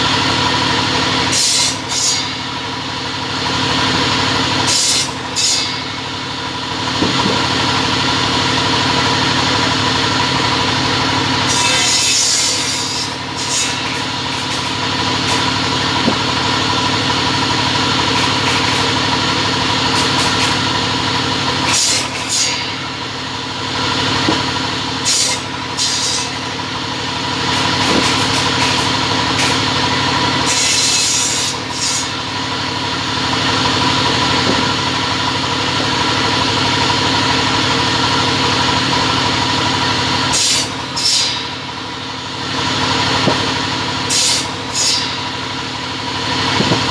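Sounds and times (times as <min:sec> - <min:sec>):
cutting saw humming: 0:00.0 - 0:46.9.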